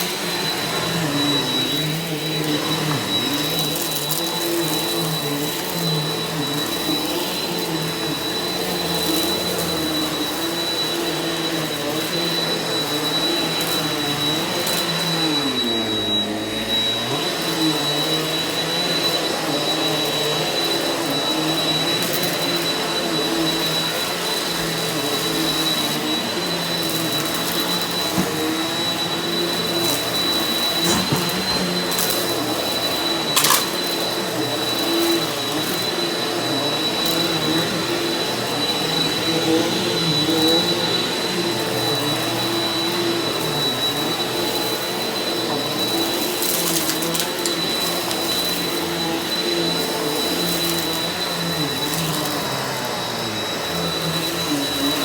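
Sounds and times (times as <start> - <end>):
upright vacuum cleaner running: 0.0 - 55.0.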